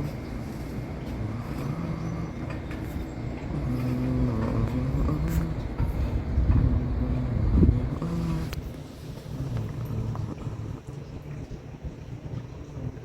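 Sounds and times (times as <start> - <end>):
engine running: 0.0 - 13.0
low rumble: 0.0 - 13.0.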